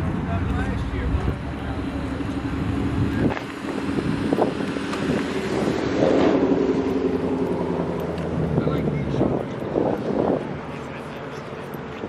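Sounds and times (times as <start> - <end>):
car engine running: 0.0 - 12.0
wind buffeting microphone: 2.4 - 10.8.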